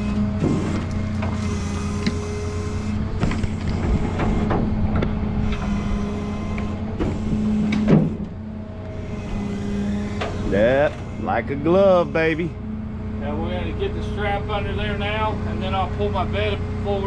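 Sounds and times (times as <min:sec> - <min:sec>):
humming tone: 0:00.0 - 0:13.2
tow truck engine running: 0:00.0 - 0:17.0
wood and metal knocks and clanks: 0:03.2 - 0:05.1, 0:07.0 - 0:08.3.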